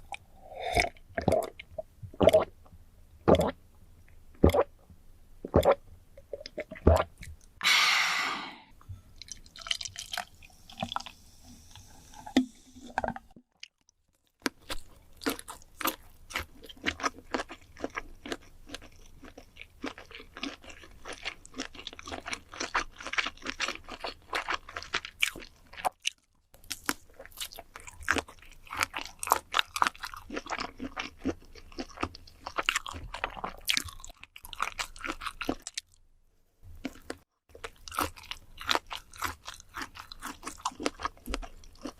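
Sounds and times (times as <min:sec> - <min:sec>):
chewing and crunching food: 0:09.1 - 0:11.2, 0:13.5 - 0:41.9.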